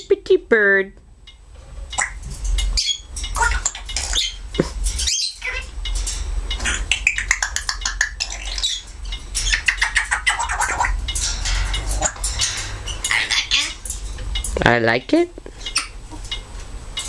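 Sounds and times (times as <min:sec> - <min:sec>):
low hum: 0:00.0 - 0:17.0
parrot chattering: 0:02.0 - 0:04.4, 0:05.0 - 0:05.8, 0:06.5 - 0:14.6, 0:15.6 - 0:16.4.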